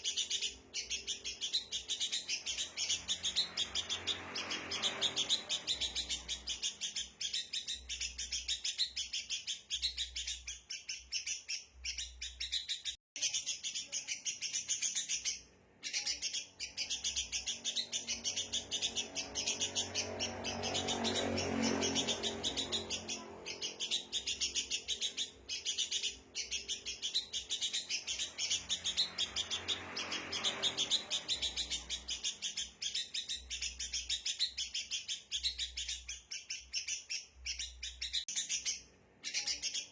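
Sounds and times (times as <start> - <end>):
birds chattering high chirps: 0.0 - 39.9.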